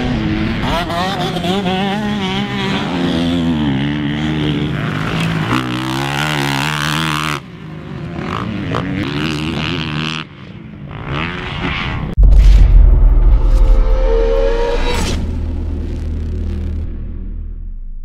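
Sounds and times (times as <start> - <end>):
motocross bike engine revving: 0.0 - 12.2
loud low rumble: 12.2 - 18.0.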